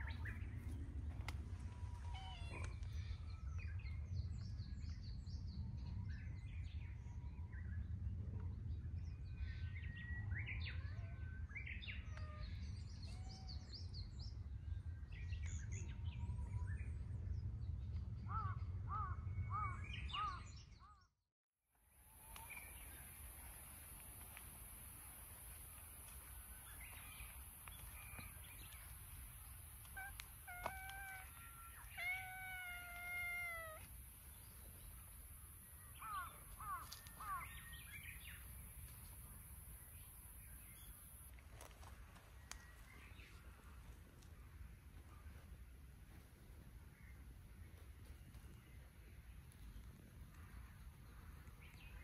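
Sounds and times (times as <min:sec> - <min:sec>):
steady low rumble: 0:00.0 - 0:10.2
small birds chirping and trilling: 0:25.5 - 0:39.2.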